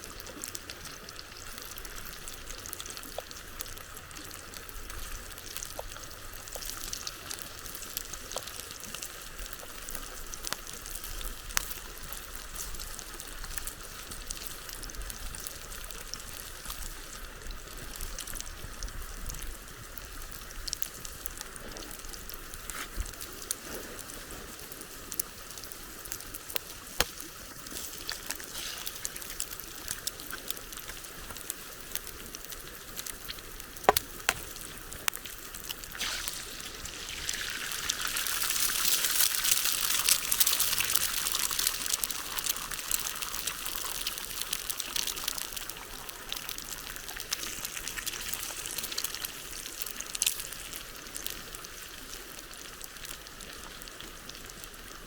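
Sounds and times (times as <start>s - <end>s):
water trickling and pouring: 33.0s - 49.9s.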